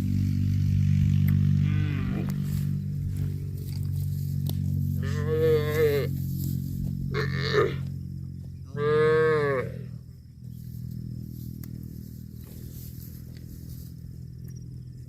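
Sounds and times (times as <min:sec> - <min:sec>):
steady low hum: 0:00.0 - 0:15.0
cow mooing: 0:01.5 - 0:02.7, 0:04.9 - 0:06.2, 0:07.0 - 0:07.9, 0:08.6 - 0:10.0.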